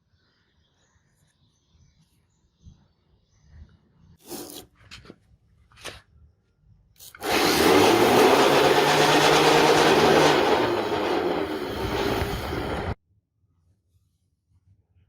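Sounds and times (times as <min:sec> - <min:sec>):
small power tool running: 0:07.1 - 0:13.0.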